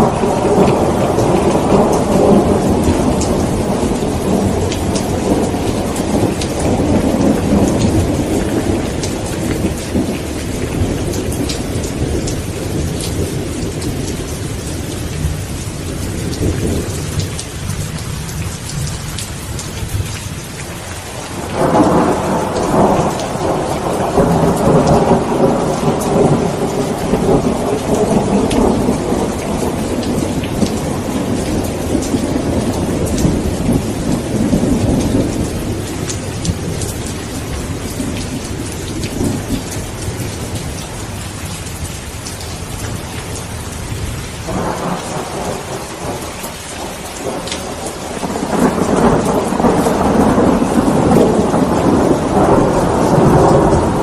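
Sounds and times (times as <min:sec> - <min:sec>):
rolling thunder: 0:00.0 - 0:17.7, 0:21.2 - 0:41.2, 0:42.8 - 0:54.0
heavy rain: 0:00.0 - 0:54.0.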